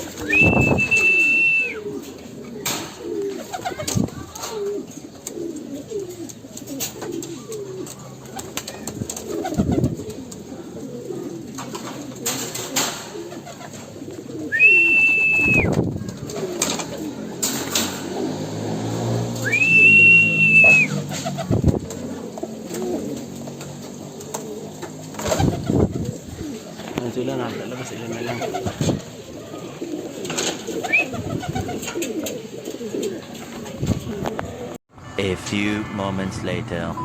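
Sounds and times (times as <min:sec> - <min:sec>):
pigeons cooing: 0:00.0 - 0:34.8
high-pitched whistle-like tones: 0:00.3 - 0:01.8, 0:19.5 - 0:21.0.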